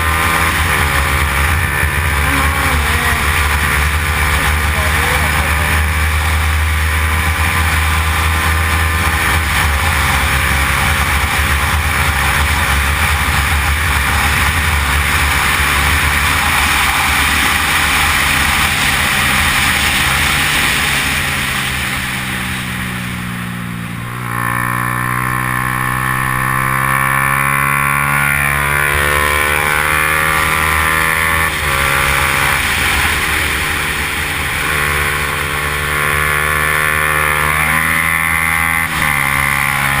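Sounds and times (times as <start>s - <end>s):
motorcycle engine running hard: 0.0s - 40.0s.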